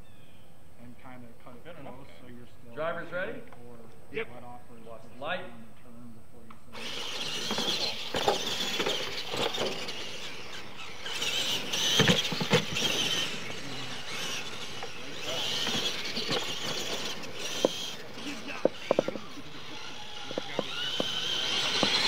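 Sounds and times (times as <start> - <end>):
toy truck electric motors whining: 6.7 - 22.0
toy truck landing thuds: 6.8 - 13.4, 14.1 - 22.0.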